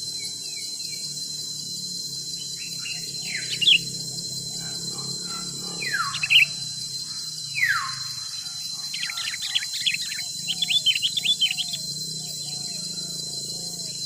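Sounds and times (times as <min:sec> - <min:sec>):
high-pitched insect drone: 0:00.0 - 0:14.0
bird long falling whistles: 0:02.1 - 0:14.0
bird chirping notes: 0:02.6 - 0:06.6, 0:07.6 - 0:12.8.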